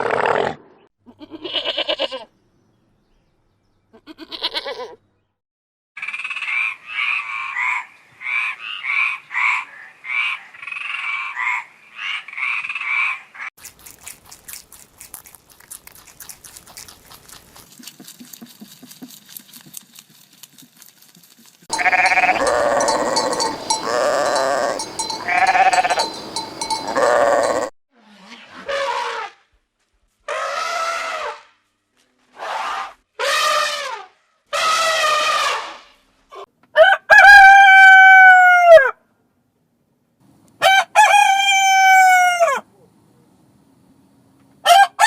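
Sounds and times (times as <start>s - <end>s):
farm animal bleating: 1.1s - 2.3s, 3.9s - 5.0s, 21.7s - 27.7s
rooster crowing: 21.7s - 27.7s, 36.8s - 39.0s, 40.6s - 42.6s, 44.7s - 45.0s.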